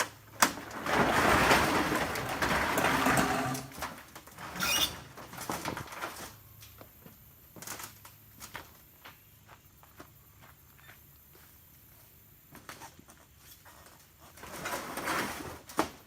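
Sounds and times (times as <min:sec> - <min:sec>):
high squeak: 0:04.5 - 0:05.1.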